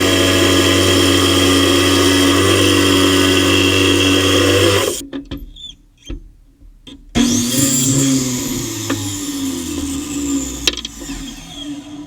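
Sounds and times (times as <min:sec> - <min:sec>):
machine humming: 0:00.0 - 0:05.0.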